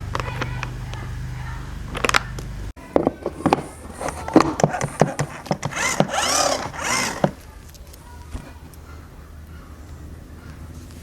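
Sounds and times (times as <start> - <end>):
tool clicks and knocks: 3.0 - 7.4
tool sweeping passes: 3.5 - 7.4.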